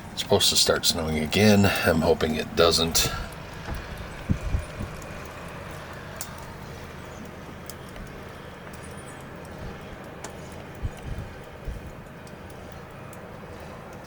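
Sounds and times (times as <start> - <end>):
distant snowblower engine rumble: 0.0 - 14.0
wind noise: 2.8 - 13.8.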